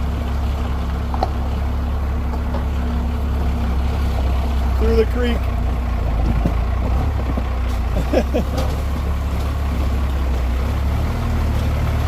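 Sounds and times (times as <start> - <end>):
truck engine running low: 0.0 - 12.0
truck knocks and squeaks: 6.1 - 10.6.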